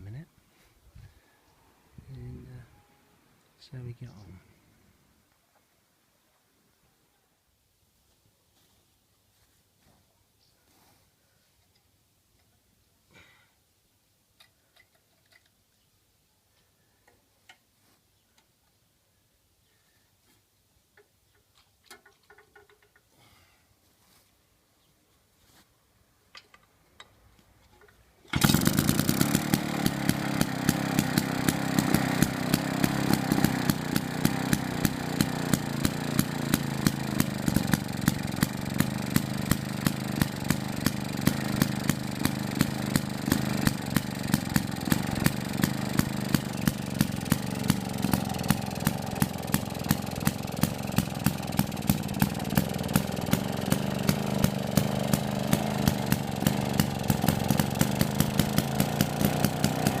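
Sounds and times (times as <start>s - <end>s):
two-stroke engine running: 28.3s - 60.0s.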